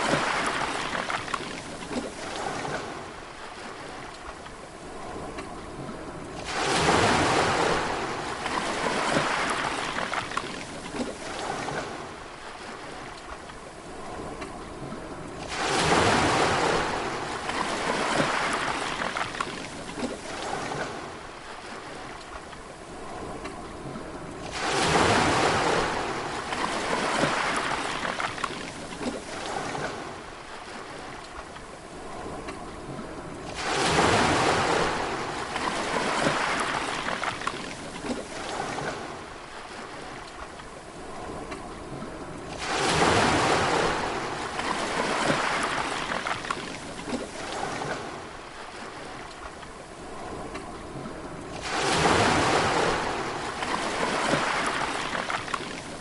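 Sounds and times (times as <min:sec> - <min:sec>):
sea waves breaking on shore: 0:00.0 - 0:56.0.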